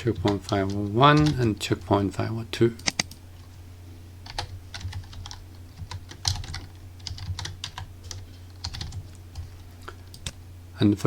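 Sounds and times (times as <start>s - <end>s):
computer keyboard typing: 0.0s - 1.5s, 2.8s - 3.2s, 4.2s - 9.5s
steady low hum: 0.0s - 11.0s.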